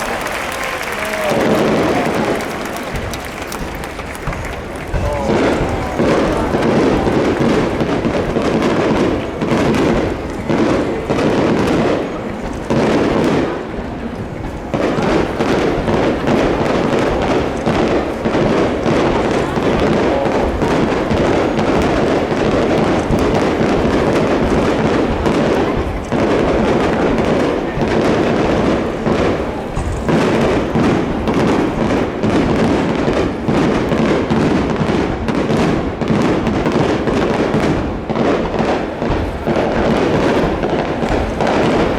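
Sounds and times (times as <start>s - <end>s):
fireworks bursting and crackling: 0.0s - 41.9s.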